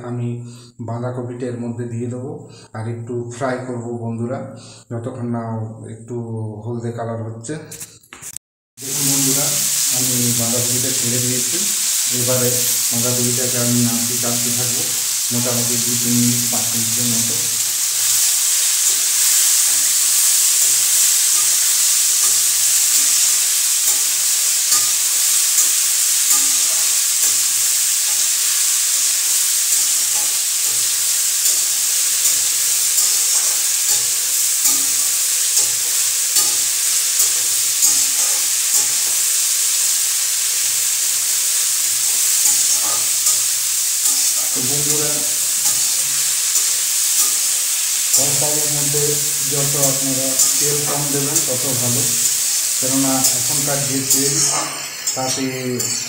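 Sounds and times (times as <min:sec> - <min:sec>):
cabbage sizzling in hot oil: 0:08.8 - 0:56.0
metal spatula scraping a pan: 0:17.6 - 0:27.8, 0:28.5 - 0:39.3, 0:42.1 - 0:56.0.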